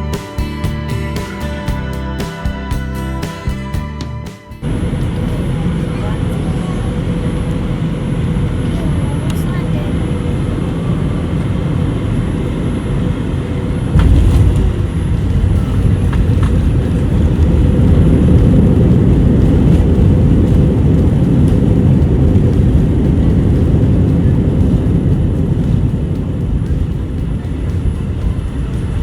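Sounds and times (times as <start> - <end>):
airliner cabin noise: 4.4 - 29.0
plane rumbling down runway: 4.6 - 29.0
wheels touching down thud: 13.9 - 23.0.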